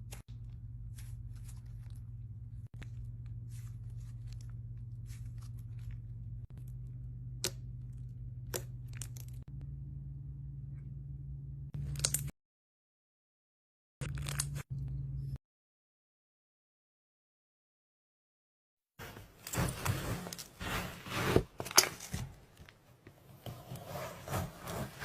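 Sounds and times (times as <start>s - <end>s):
steady low hum: 0.0s - 12.3s.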